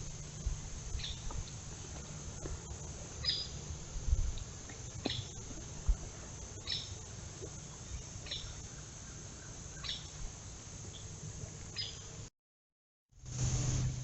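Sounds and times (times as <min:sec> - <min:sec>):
bird chirping: 0:00.9 - 0:01.4, 0:03.2 - 0:03.6, 0:04.9 - 0:05.4, 0:06.6 - 0:07.0, 0:07.7 - 0:10.2, 0:10.9 - 0:12.1.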